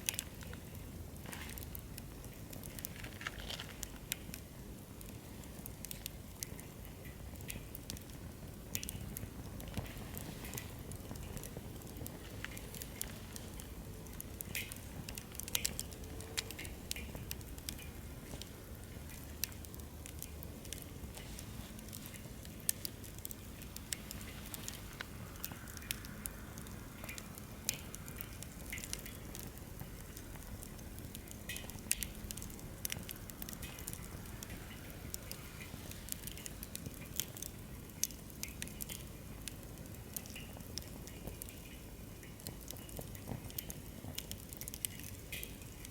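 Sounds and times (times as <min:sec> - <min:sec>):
campfire crackling and popping: 0:00.0 - 0:45.9
low rumble of flame: 0:00.0 - 0:45.9.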